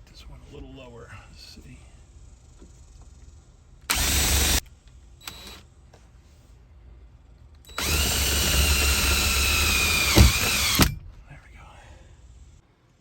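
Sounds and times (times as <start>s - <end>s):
power drill running: 3.9s - 4.6s, 5.2s - 5.6s, 7.7s - 11.0s.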